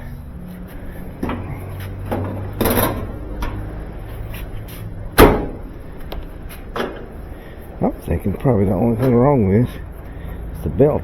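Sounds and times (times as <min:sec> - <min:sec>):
knocks and clunks of dryer cabinet: 0:01.2 - 0:03.7, 0:05.1 - 0:05.8, 0:06.7 - 0:07.1.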